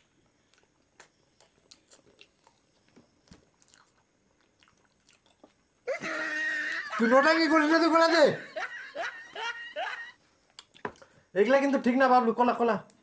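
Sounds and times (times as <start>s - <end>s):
wet mouth clicks chewing: 0.0s - 5.8s, 10.5s - 11.1s.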